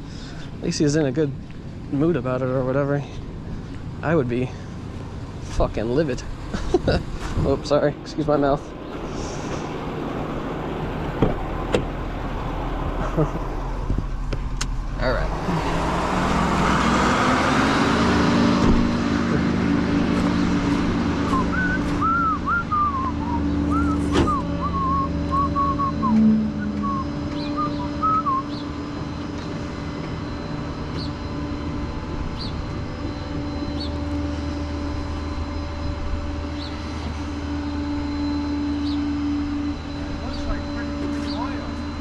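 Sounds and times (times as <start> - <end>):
vehicle engine idling: 0.0 - 42.0
high whistled chirps: 21.2 - 28.9.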